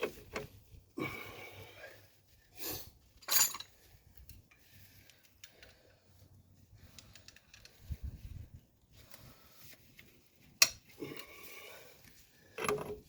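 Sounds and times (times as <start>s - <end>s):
steel tools clinking: 3.2s - 3.8s.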